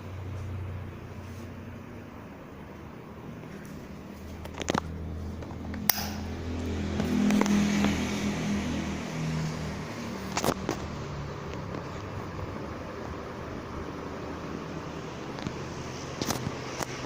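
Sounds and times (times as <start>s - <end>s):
ceiling fan motor hum: 0.0s - 17.0s
sharp clicks: 5.7s - 6.3s.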